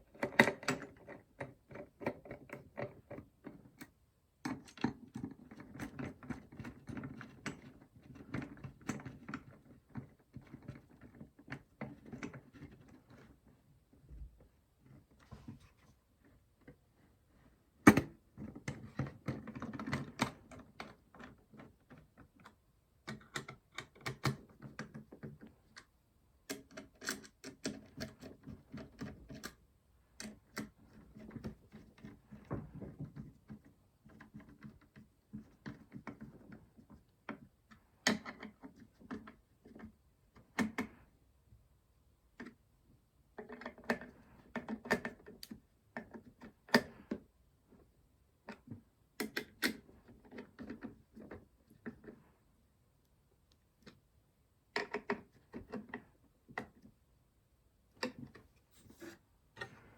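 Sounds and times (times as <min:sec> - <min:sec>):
clicks and taps of small parts: 0:17.9 - 0:29.6, 0:43.4 - 0:47.2, 0:48.4 - 0:52.3, 0:54.8 - 0:56.9.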